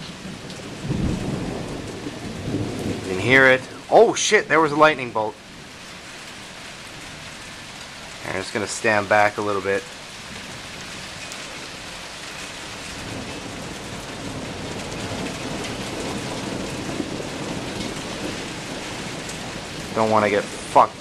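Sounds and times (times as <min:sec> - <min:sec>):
thunder rolling: 0:00.0 - 0:06.1, 0:12.8 - 0:21.0
heavy rain pouring: 0:00.0 - 0:21.0.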